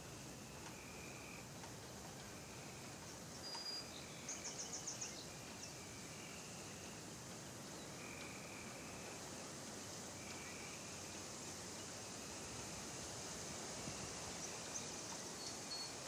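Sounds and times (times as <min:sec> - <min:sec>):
steady hiss: 0:00.0 - 0:16.0
bird trill: 0:03.4 - 0:06.6, 0:14.4 - 0:16.0.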